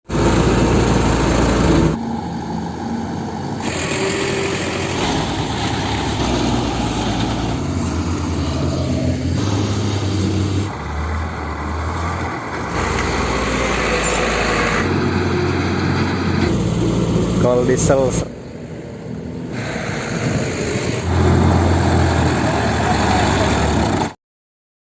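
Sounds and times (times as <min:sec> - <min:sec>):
heavy diesel engines running: 0:00.0 - 0:24.2.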